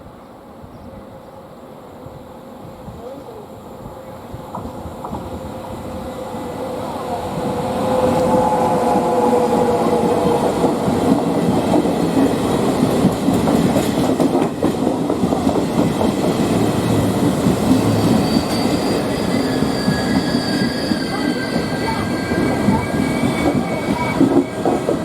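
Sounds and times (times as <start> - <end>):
train wheels clattering on rails: 4.4 - 5.4, 9.5 - 25.0
high wheel squeal: 17.8 - 24.6.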